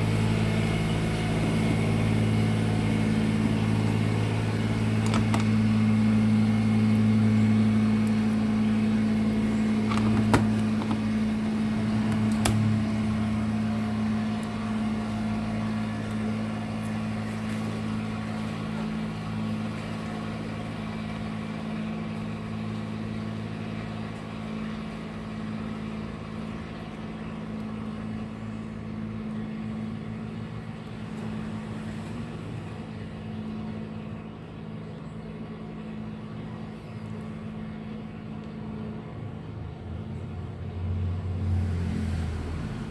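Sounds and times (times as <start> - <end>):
low machine hum: 0.0 - 42.9.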